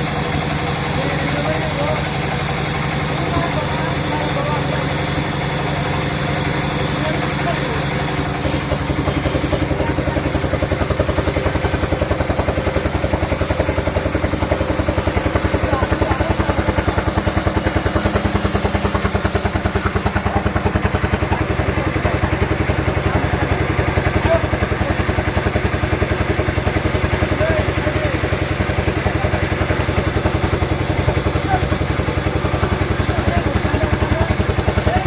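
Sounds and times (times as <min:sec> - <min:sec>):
sawmill engine thumping: 0:00.0 - 0:35.0.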